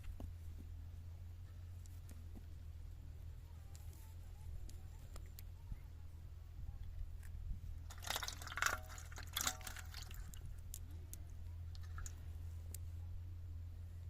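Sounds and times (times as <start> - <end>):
low hum: 0.0 - 14.0
water splashing and dripping: 7.9 - 10.5, 11.7 - 12.2.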